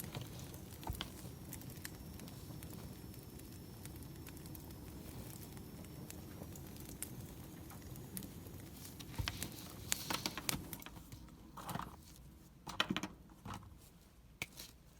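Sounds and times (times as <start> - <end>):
low hiss of fire: 0.0 - 12.6
wood fire crackling: 0.0 - 14.9.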